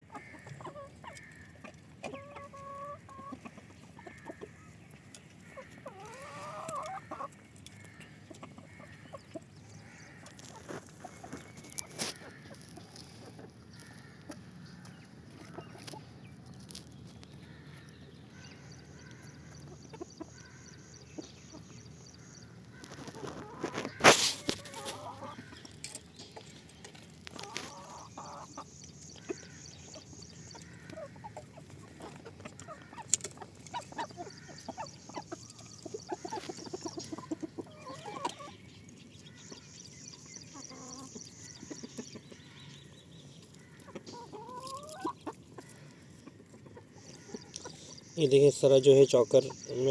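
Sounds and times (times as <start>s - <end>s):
hens clucking: 0.0s - 49.9s.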